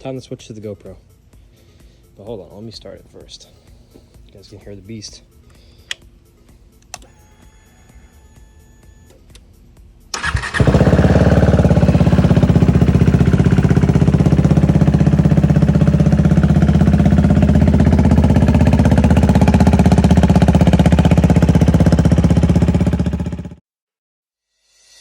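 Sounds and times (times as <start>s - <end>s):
motorcycle engine starting and idling: 6.8s - 9.4s, 10.1s - 23.6s.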